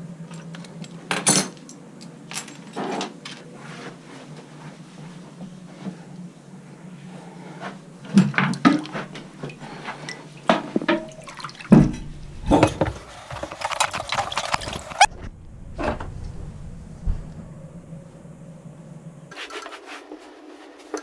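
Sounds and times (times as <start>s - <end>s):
water rushing and splashing: 12.5s - 15.1s.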